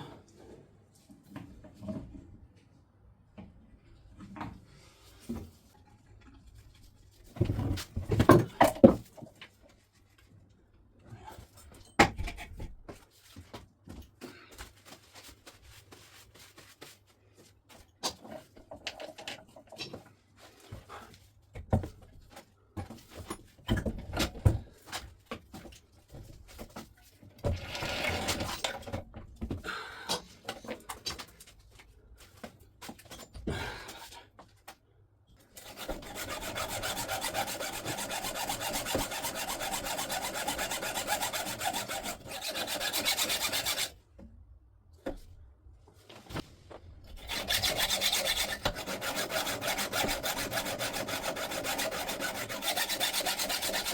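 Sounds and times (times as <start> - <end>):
metal being filed by hand: 35.6 - 44.0, 47.2 - 53.9.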